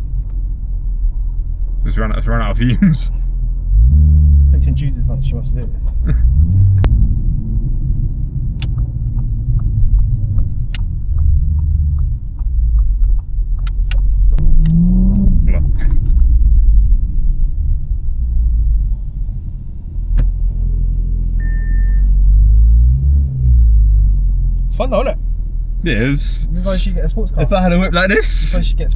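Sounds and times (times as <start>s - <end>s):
deep exhaust drone: 0.0s - 28.9s
exhaust pops and crackles: 4.5s - 20.9s
short beep: 21.4s - 22.1s.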